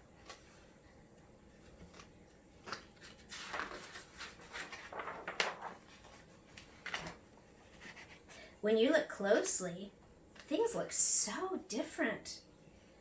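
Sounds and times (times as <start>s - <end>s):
paper page rustling: 0.0s - 0.8s, 1.5s - 8.3s
page flicks: 1.8s - 5.8s.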